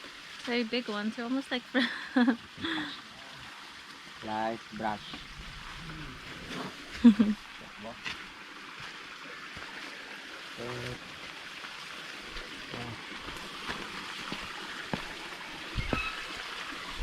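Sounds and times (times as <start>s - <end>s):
leaves rustling: 3.0s - 10.0s.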